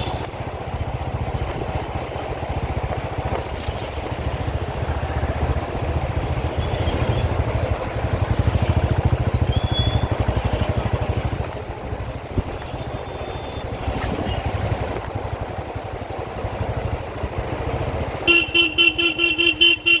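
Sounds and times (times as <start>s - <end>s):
motorcycle engine running: 0.0s - 20.0s
horn honking short beeps: 18.2s - 20.0s.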